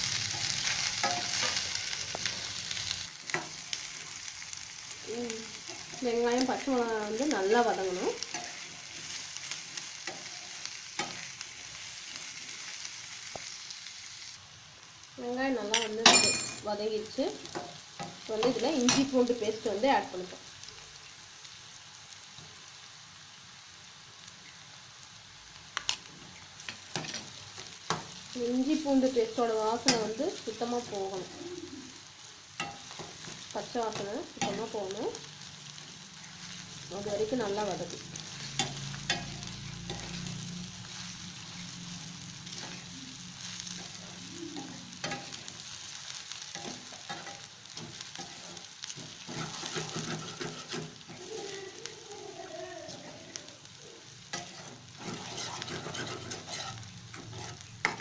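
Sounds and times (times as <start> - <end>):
onions sizzling in hot oil: 0.0 - 58.0
spatula scraping a pan: 0.1 - 2.5, 46.4 - 51.6, 54.3 - 58.0.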